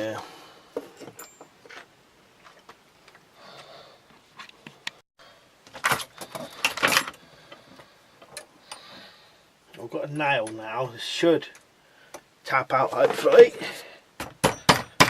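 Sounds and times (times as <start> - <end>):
metal tools clinking: 0.9 - 1.9.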